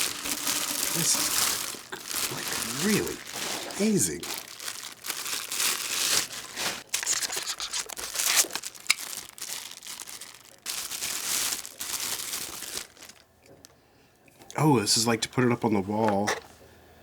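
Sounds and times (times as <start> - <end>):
paper tearing: 0.0 - 9.3
packing material crinkling: 0.0 - 13.7.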